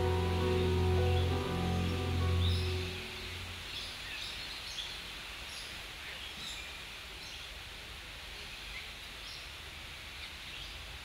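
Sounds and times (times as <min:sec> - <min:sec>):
bird chirps: 0:00.0 - 0:04.4
steady background hiss: 0:00.0 - 0:11.0.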